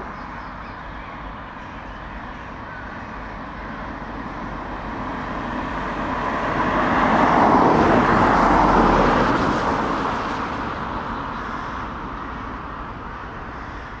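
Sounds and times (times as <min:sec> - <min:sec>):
heavy truck driving past: 0:04.8 - 0:11.3.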